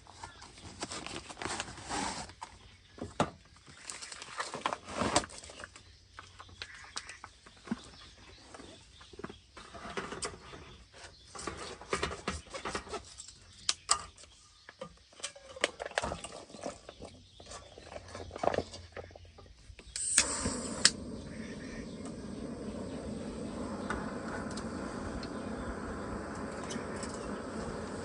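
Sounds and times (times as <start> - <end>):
steady hiss: 19.8 - 28.0.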